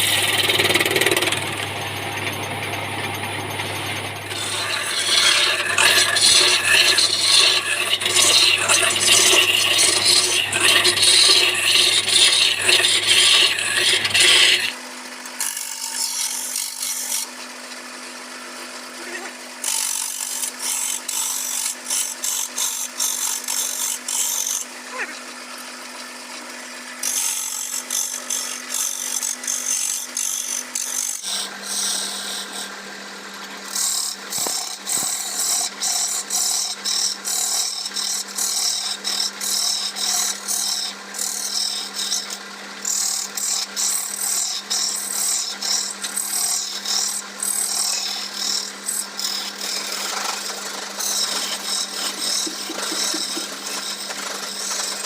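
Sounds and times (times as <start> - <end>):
turning tool scraping wood: 0.0 - 14.8, 33.4 - 55.0
wood lathe motor hum: 0.0 - 55.0.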